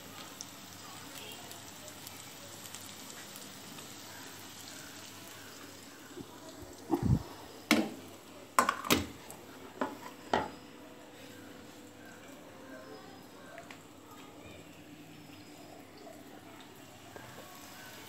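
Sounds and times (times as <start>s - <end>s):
potato slices sizzling in oil: 0.0s - 18.0s
cookware knocking and clanking: 8.6s - 9.1s, 9.8s - 10.5s.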